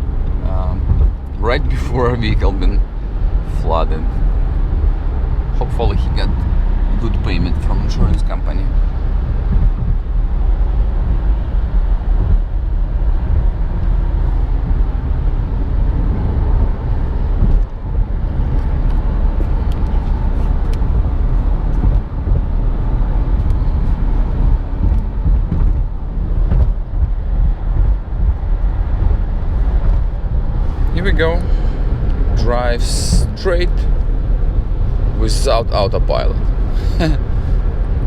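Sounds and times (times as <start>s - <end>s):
car engine noise: 0.0s - 38.0s
road and tyre rumble: 0.0s - 38.0s.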